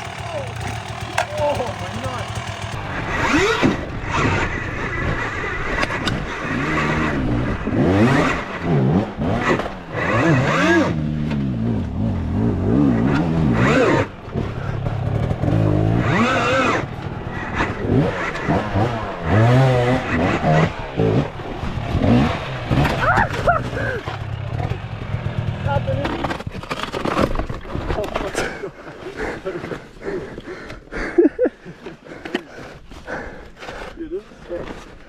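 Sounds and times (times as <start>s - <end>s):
dirt bike engine revving: 0.0s - 26.4s.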